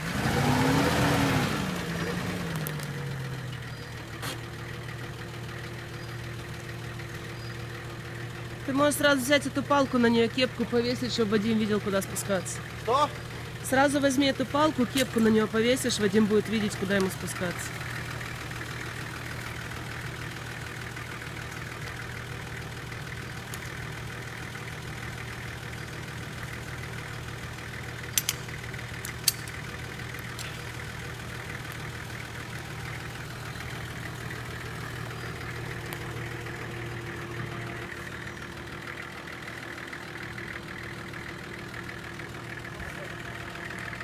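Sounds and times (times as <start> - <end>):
engine idling: 0.0 - 44.0
sharp clicks: 28.1 - 30.6.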